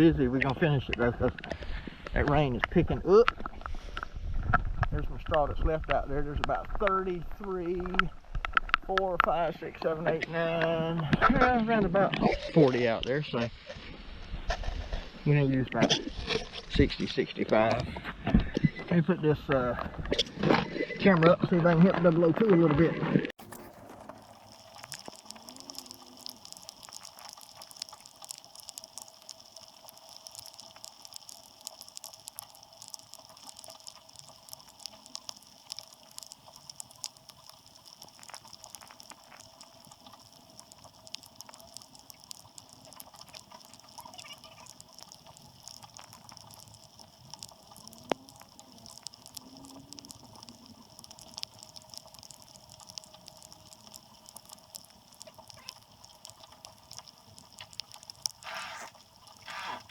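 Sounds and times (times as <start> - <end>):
faint steady hum: 0.0 - 59.9
light rain pattering and dripping: 0.0 - 59.9.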